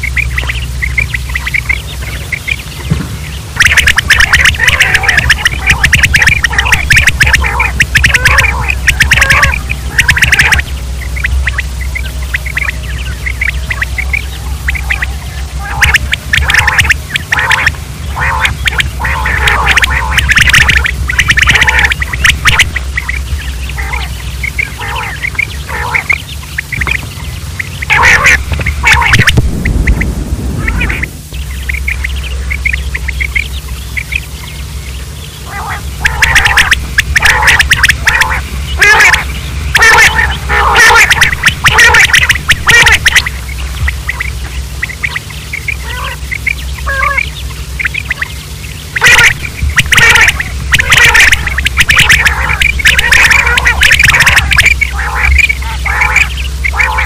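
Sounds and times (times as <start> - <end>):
quails calling: 0.0 - 57.0
steady low hum: 0.0 - 57.0.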